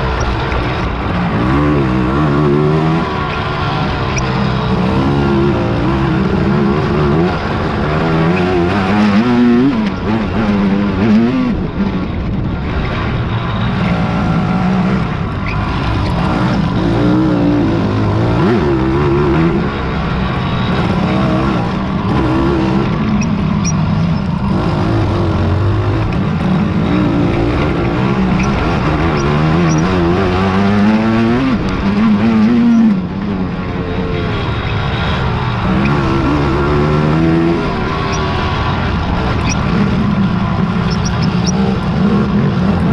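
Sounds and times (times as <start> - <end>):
quad engines revving: 0.0 - 42.9.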